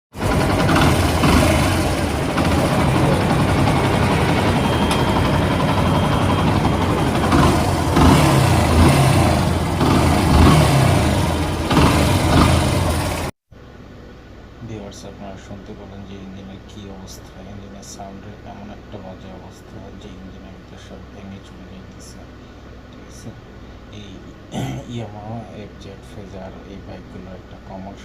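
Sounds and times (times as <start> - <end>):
motorcycle engine running roughly: 0.1 - 13.3.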